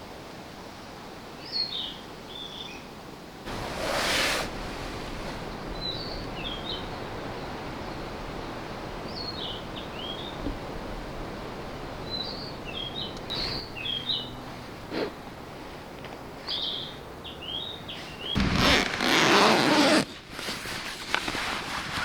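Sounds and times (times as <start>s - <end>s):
steady outdoor hiss: 0.0s - 22.0s
songbird chirping: 5.2s - 14.6s, 16.1s - 20.0s
loud rustling: 18.4s - 22.0s.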